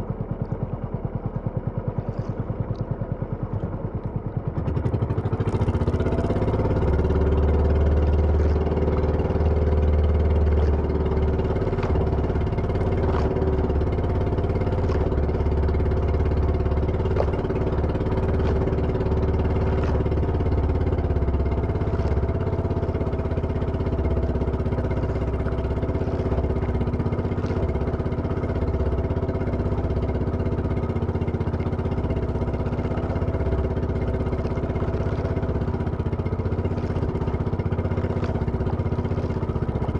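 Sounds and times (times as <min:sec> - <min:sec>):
small engine running steadily: 0:00.0 - 0:39.9.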